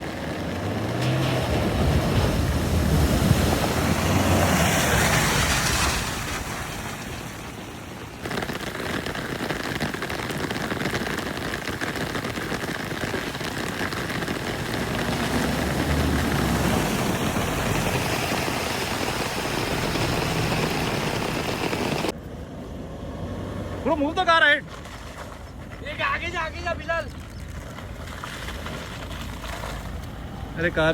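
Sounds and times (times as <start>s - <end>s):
truck engine running: 0.0s - 8.4s, 13.1s - 22.8s
water splashing: 0.0s - 22.1s, 27.1s - 30.6s.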